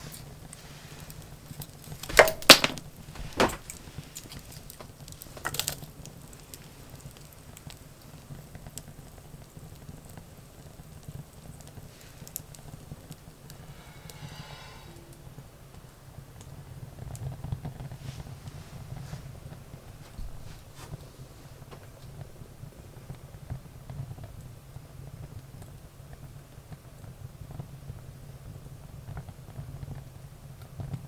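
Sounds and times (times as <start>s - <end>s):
wood fire crackling and popping: 0.0s - 13.2s.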